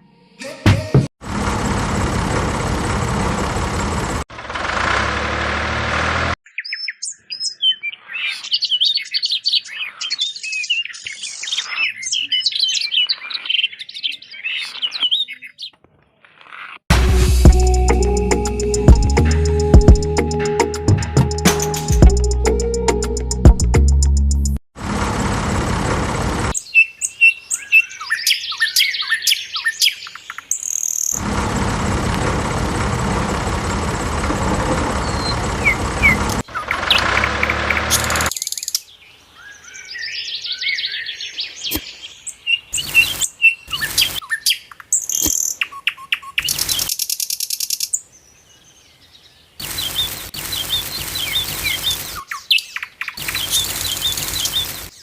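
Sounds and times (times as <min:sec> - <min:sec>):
small birds chirping: 0:06.4 - 0:16.8, 0:26.6 - 0:31.2, 0:33.3 - 0:55.0.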